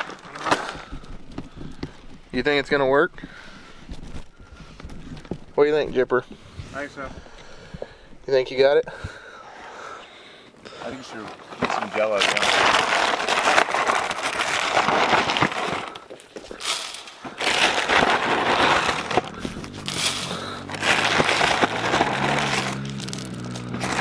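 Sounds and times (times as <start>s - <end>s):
dry cereal pouring: 11.7s - 24.0s.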